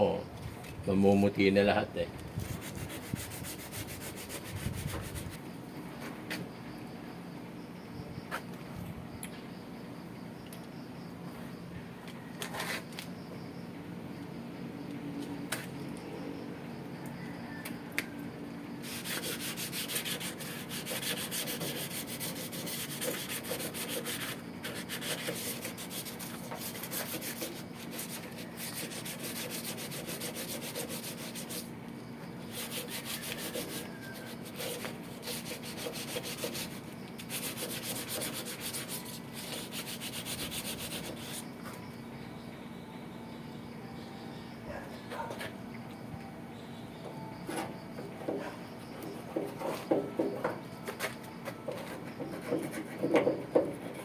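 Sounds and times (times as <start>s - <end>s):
sandpaper scratching on metal: 2.4s - 5.4s, 18.8s - 31.7s, 32.4s - 41.4s.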